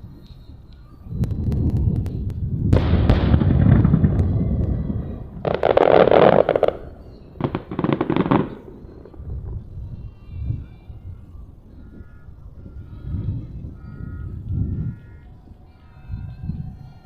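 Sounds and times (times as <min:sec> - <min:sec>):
firework boom: 0:01.2 - 0:09.8
firework crackling: 0:01.2 - 0:10.1.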